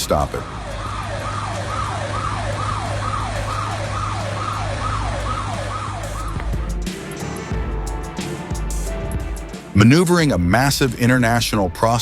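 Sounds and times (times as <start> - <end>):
siren yelping: 0.0 - 7.4
low engine hum: 0.0 - 9.5.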